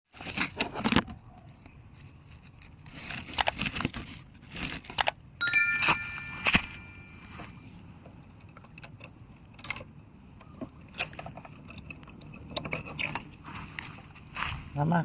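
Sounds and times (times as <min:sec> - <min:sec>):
rustling and crinkling: 0:00.1 - 0:05.0, 0:10.6 - 0:14.9.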